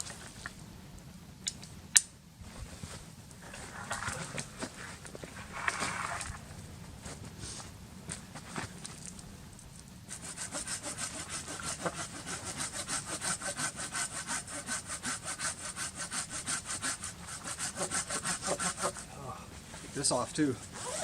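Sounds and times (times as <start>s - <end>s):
hand saw cutting wood: 10.1s - 19.1s, 20.6s - 21.0s.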